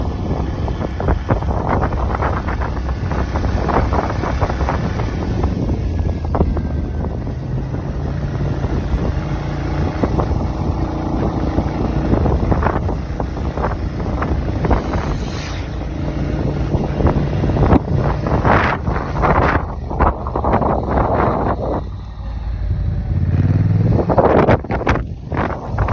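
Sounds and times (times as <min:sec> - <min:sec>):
scooter engine: 0:00.0 - 0:25.9
wind buffeting microphone: 0:00.0 - 0:25.9.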